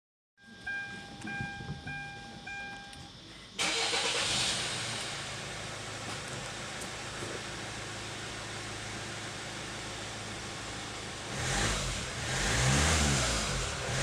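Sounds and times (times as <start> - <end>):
dashboard warning chime: 0.4 - 3.4
car engine starting and idling: 0.4 - 14.0.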